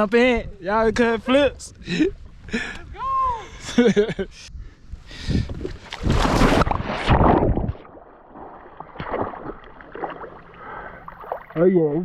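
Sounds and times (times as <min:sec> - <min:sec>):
water sloshing: 0:05.6 - 0:11.7
loud splashes into water: 0:06.0 - 0:11.6.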